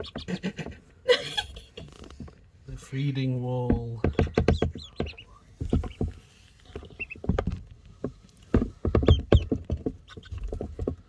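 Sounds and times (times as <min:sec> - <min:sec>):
ducklings peeping: 0:00.0 - 0:00.9, 0:03.0 - 0:11.0
ducklings pecking wet food: 0:00.0 - 0:11.0.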